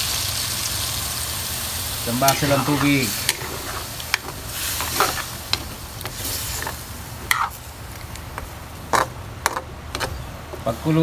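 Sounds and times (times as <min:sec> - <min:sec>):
chicken sizzling: 0:00.0 - 0:11.0
metal spoon scraping a wok: 0:02.2 - 0:07.6, 0:08.9 - 0:10.3.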